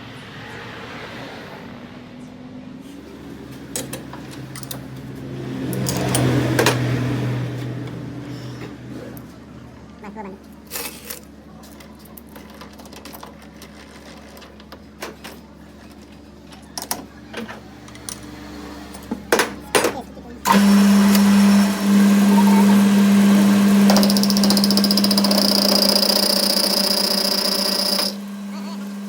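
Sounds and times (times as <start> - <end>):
workshop machine humming: 2.8 - 29.0
tools and metal clicking: 3.8 - 4.9, 5.7 - 6.7.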